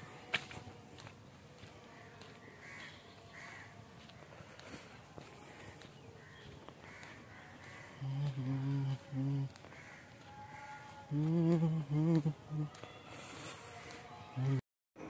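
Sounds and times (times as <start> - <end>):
faint bird calls: 5.9 - 13.5.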